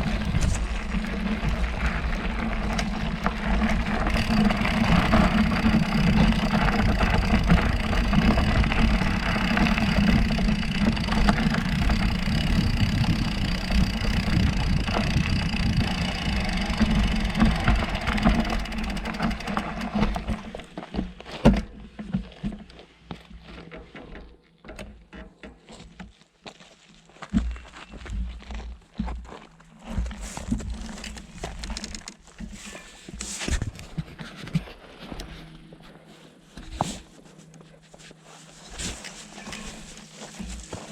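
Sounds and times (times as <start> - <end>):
wind and tyre noise: 0.0 - 21.7
bike rattles and clicks: 0.0 - 26.1, 29.1 - 40.9.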